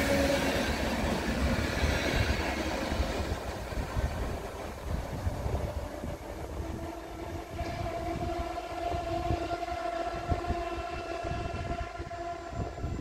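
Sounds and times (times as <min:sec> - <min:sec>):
train rumbling: 0:00.0 - 0:13.0
long steady tone: 0:05.4 - 0:13.0.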